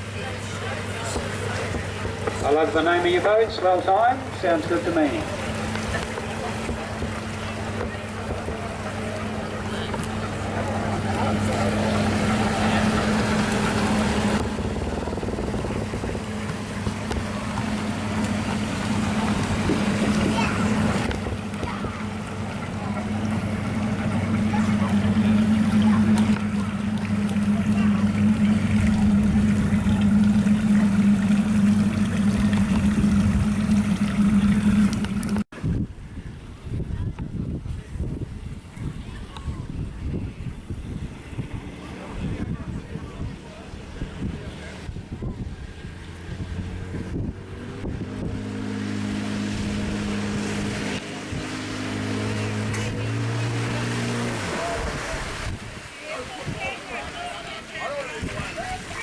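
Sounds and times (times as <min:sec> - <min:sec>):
boat engine hum: 0:00.0 - 0:59.0
rush of wind and water: 0:00.0 - 0:59.0.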